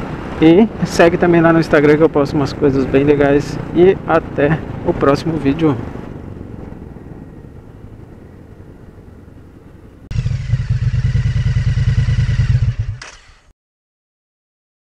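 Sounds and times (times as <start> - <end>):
loud motorcycle engine: 10.1 - 13.5
scooter engine riding: 10.1 - 13.5.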